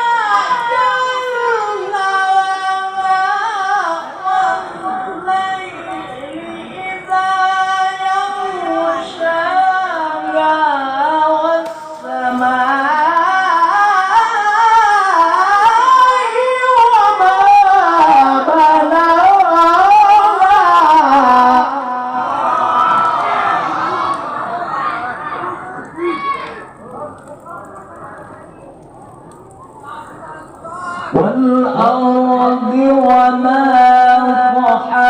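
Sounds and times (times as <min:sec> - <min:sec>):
man chanting melismatic recitation: 0:00.0 - 0:22.6, 0:29.8 - 0:35.0.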